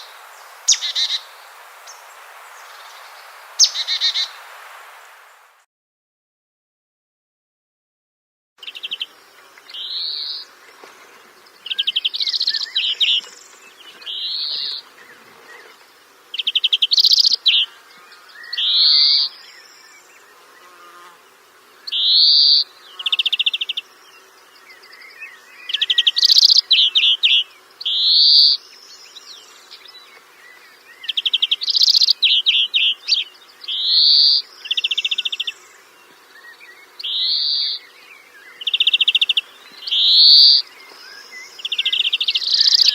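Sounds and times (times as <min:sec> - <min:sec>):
bird calling: 0:00.0 - 0:04.4, 0:16.4 - 0:21.2, 0:21.8 - 0:28.6, 0:29.7 - 0:42.9.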